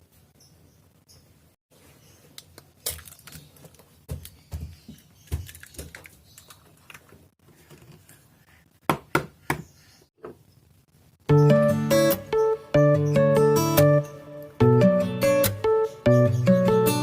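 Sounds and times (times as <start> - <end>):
strummed acoustic guitar music: 11.3 - 17.0.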